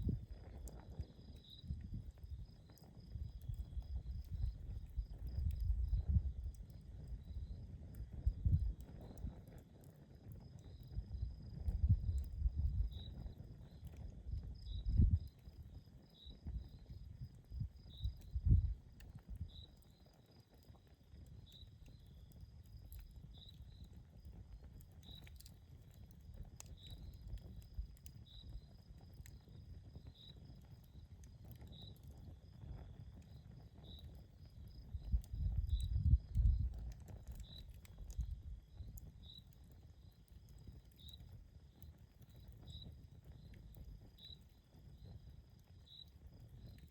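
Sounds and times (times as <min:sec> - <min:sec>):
campfire crackles: 0:00.0 - 0:46.9
insect chirping: 0:14.6 - 0:18.6, 0:34.6 - 0:36.7, 0:45.2 - 0:46.7.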